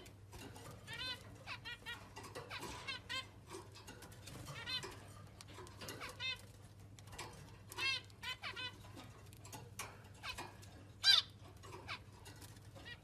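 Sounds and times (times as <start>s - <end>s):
parrot squawking: 0.8s - 3.4s, 4.4s - 6.5s, 7.7s - 9.1s, 10.2s - 12.2s.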